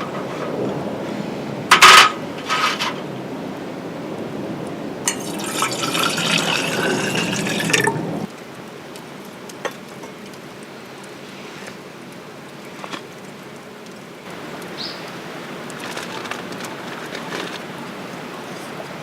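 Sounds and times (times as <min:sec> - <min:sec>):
drink pouring into a cup: 0:05.1 - 0:08.3.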